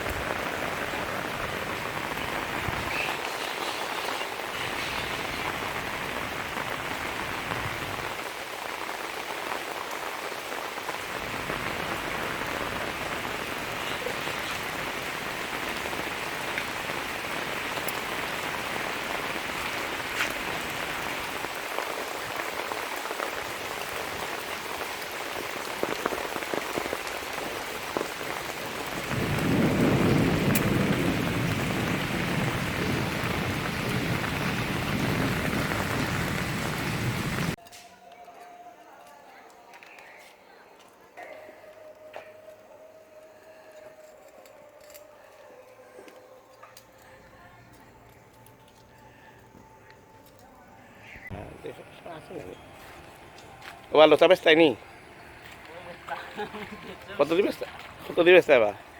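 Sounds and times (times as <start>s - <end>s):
heavy rain falling: 0.0s - 37.6s, 51.1s - 58.9s.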